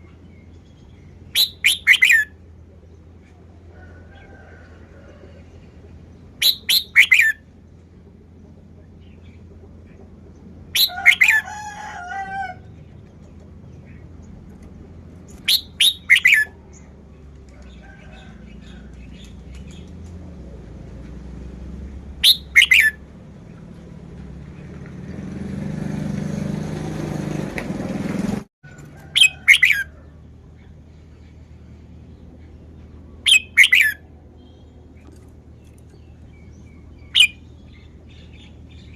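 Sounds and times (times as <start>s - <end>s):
bird singing whistled phrases: 1.3s - 2.3s, 6.4s - 7.4s, 10.8s - 11.4s, 15.5s - 16.5s, 22.2s - 23.0s, 29.2s - 29.8s, 33.3s - 34.6s, 37.0s - 37.5s.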